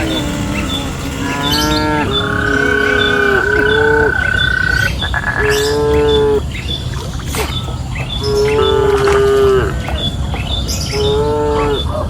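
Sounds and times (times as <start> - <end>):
calves mooing: 0.0 - 6.5
small bird chirping: 0.0 - 8.8, 9.7 - 11.9.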